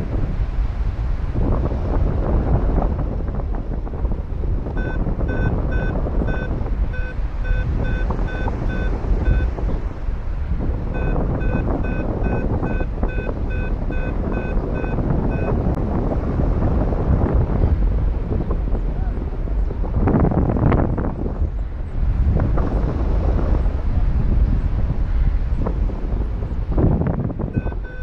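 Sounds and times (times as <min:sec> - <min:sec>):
wind rumble on microphone: 0:00.0 - 0:28.0
variometer high beeps: 0:04.7 - 0:09.8, 0:10.9 - 0:15.8, 0:27.6 - 0:28.0.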